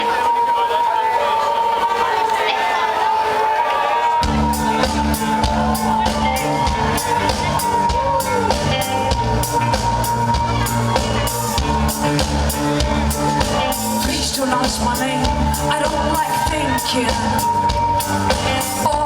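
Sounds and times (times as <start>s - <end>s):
bass line: 4.2s - 19.0s
drum beat: 4.2s - 19.0s.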